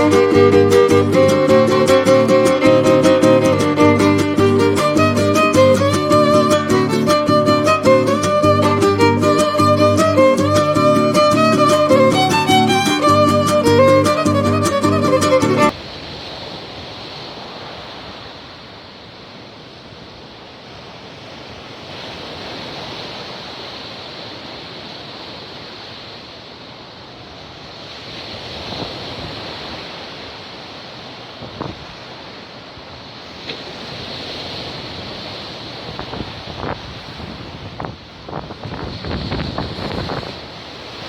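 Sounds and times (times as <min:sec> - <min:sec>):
wind buffeting microphone: 0:00.0 - 0:15.7, 0:33.8 - 0:41.0
surf breaking on shore: 0:00.0 - 0:19.0, 0:27.9 - 0:41.0.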